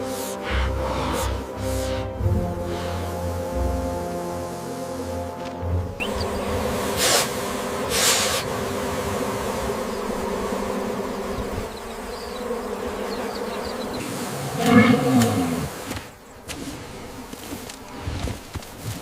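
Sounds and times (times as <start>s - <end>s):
bees buzzing: 0.0s - 18.0s
aerosol spray hissing: 6.0s - 11.6s.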